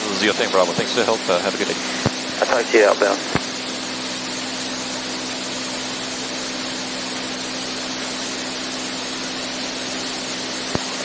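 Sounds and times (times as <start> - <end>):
propeller plane engine droning: 3.4 - 10.8.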